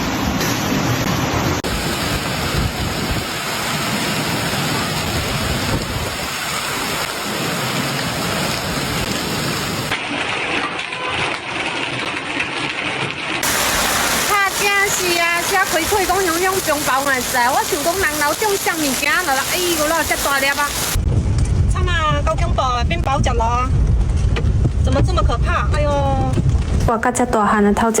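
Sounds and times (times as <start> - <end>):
heavy rain pouring: 0.0 - 21.8.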